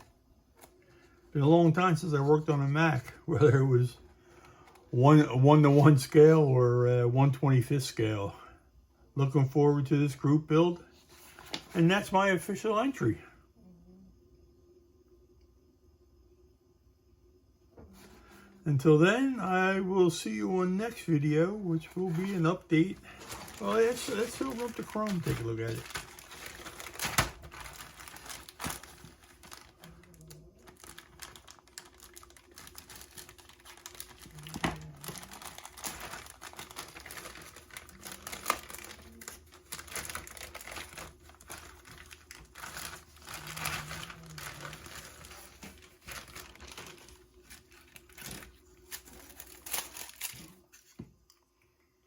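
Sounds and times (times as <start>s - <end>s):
plastic bag crinkling: 20.8s - 50.9s.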